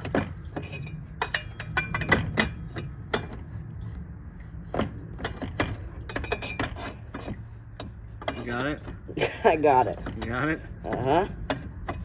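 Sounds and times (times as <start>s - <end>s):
metal clinks and knocks: 0.0s - 3.4s, 5.2s - 9.0s.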